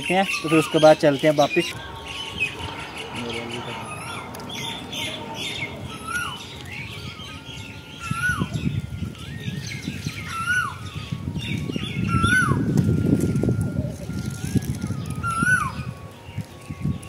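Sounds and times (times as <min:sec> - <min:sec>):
rising and falling bird call: 0:00.0 - 0:12.8, 0:14.9 - 0:16.0
birds chirping: 0:00.0 - 0:17.0.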